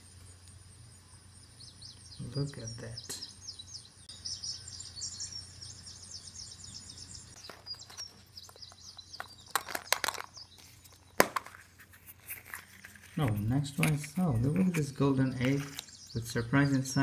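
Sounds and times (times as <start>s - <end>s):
high bird-like chirping: 1.5s - 11.2s, 12.2s - 17.0s
plastic egg and wrapper crackling: 7.4s - 16.1s.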